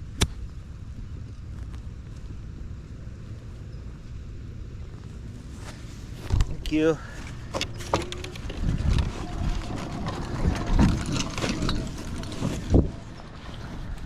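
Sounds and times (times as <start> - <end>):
wind rumbling on microphone: 0.0 - 14.0
knocks and rattles: 7.4 - 13.2.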